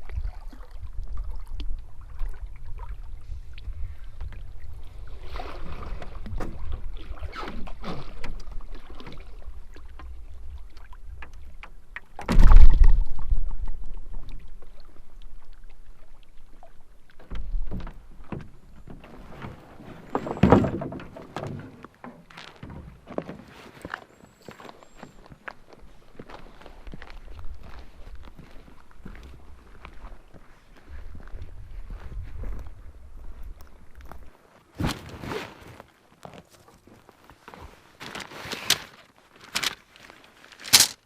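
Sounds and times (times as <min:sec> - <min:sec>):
low wind rumble on microphone: 0:00.0 - 0:07.4, 0:30.8 - 0:34.3
loud hollow thunk: 0:12.2 - 0:13.0.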